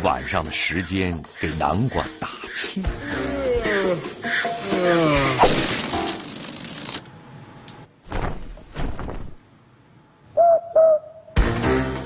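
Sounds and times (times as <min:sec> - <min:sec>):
cartoon air pump hissing: 0:00.6 - 0:07.0.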